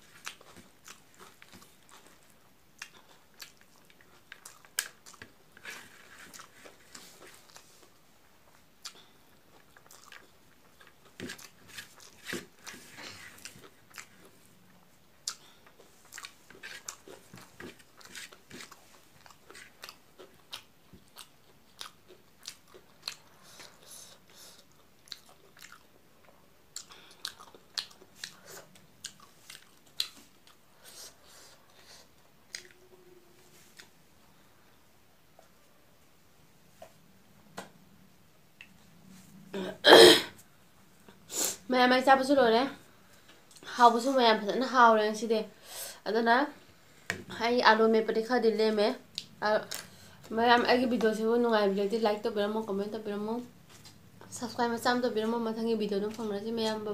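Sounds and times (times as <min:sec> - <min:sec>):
person chewing food: 0:00.0 - 0:33.0, 0:49.1 - 0:50.3.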